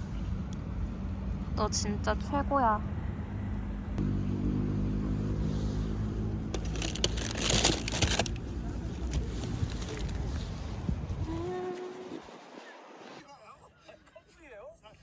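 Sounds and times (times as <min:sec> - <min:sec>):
vehicle engine humming: 0:00.0 - 0:13.2
loud rustling and crinkling: 0:06.5 - 0:13.2.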